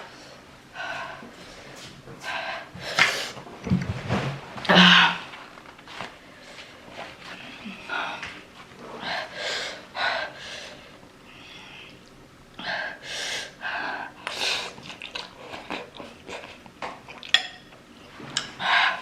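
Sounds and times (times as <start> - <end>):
heavy hissing breaths: 9.0 - 11.9, 12.6 - 14.8.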